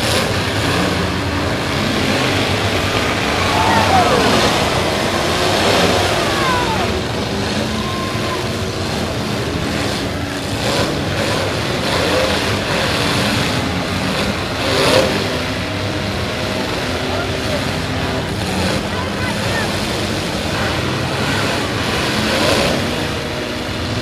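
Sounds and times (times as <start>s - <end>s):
cars colliding: 0.0s - 10.6s
car engines revving: 0.0s - 24.0s.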